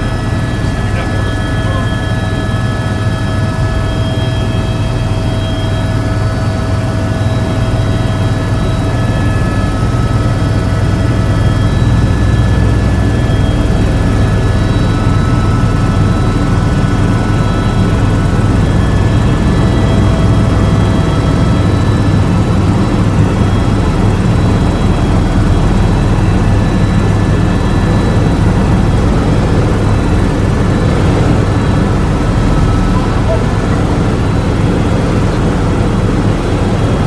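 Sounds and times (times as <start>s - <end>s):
helicopter rotor drone: 0.0s - 37.0s.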